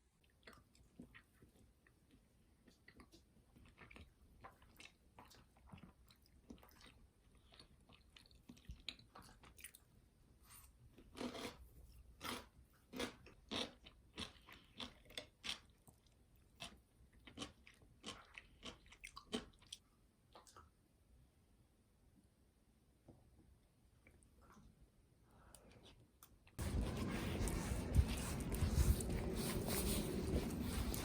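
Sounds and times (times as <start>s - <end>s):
person chewing crunchy food: 11.0s - 19.8s, 26.6s - 31.0s.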